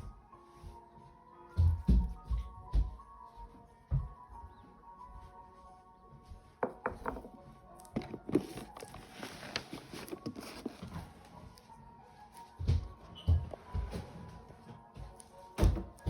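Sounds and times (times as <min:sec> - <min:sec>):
irregular knocks and taps: 0:01.6 - 0:03.0, 0:06.6 - 0:08.9.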